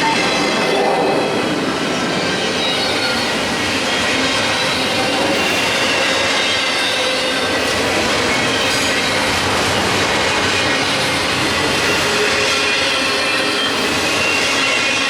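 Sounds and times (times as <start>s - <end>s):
train wheels rolling on rails: 0.0s - 15.0s.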